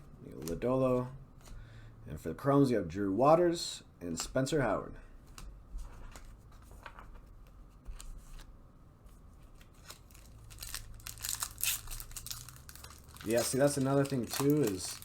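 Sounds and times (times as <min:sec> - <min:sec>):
foil wrapper tearing and crinkling: 0:09.8 - 0:15.0.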